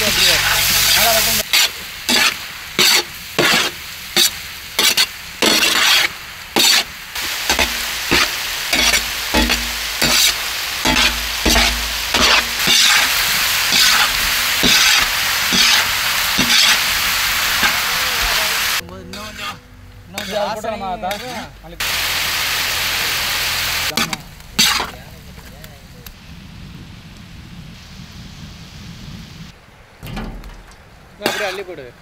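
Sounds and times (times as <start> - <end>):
metal spatula scraping pan: 0.0 - 18.0, 19.1 - 21.5, 23.9 - 25.0, 31.2 - 31.7
prawns sizzling in oil: 0.0 - 19.6, 20.2 - 26.1, 31.2 - 31.8.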